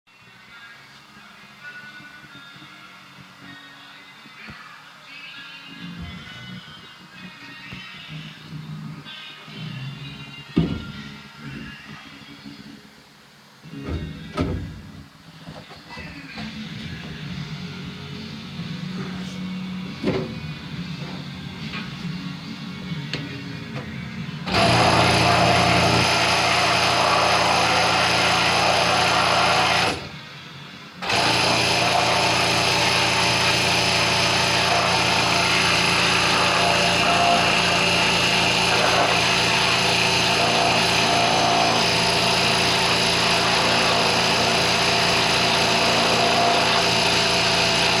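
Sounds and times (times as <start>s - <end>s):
pressure washer motor hum: 24.5s - 30.2s, 31.0s - 48.0s.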